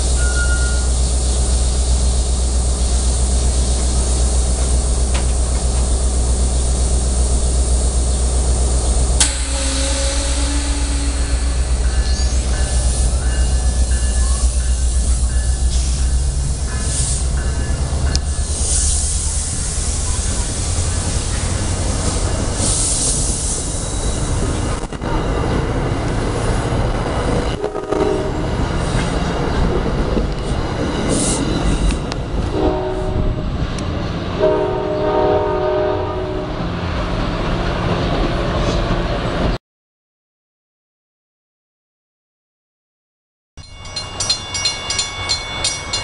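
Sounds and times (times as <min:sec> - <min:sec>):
train coaches rolling past: 0:00.0 - 0:39.6, 0:43.6 - 0:46.0
train horn blasts: 0:09.2 - 0:12.4, 0:27.5 - 0:28.6, 0:32.5 - 0:33.5, 0:34.4 - 0:36.7.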